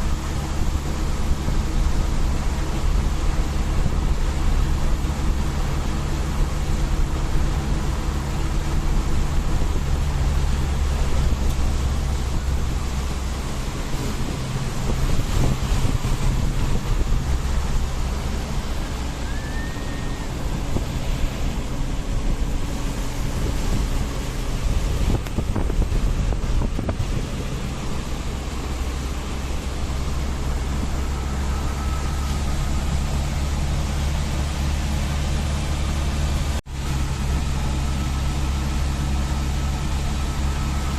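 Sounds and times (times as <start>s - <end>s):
road and wind noise: 0.0s - 40.9s
vehicle engine hum: 0.0s - 40.9s.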